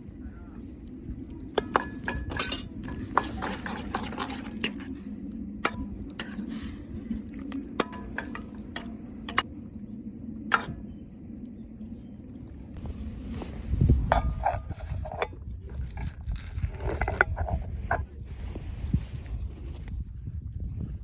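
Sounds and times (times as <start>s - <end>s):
utensils clinking on metal cookware: 1.5s - 4.9s, 7.8s - 9.5s.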